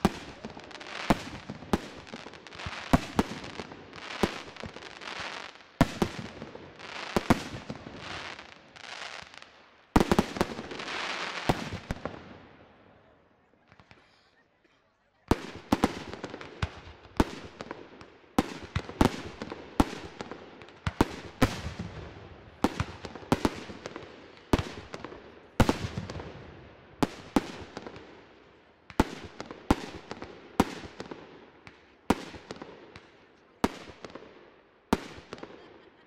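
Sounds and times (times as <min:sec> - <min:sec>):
fireworks bangs: 0:00.0 - 0:12.4.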